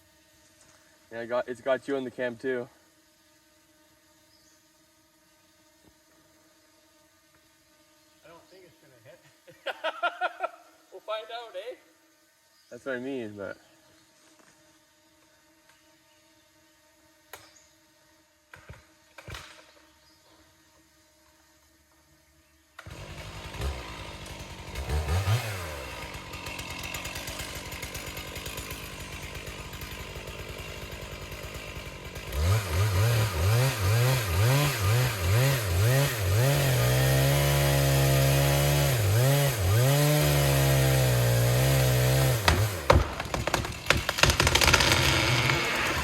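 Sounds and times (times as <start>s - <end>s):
chainsaw revving: 22.8s - 46.0s.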